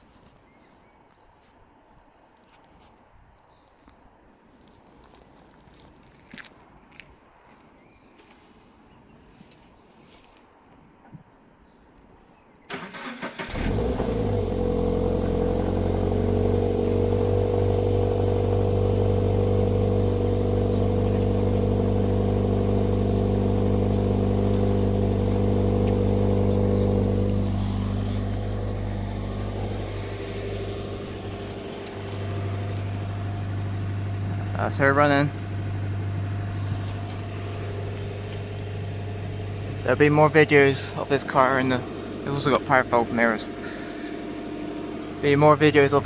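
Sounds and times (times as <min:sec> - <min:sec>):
car engine idling: 0:12.8 - 0:46.0.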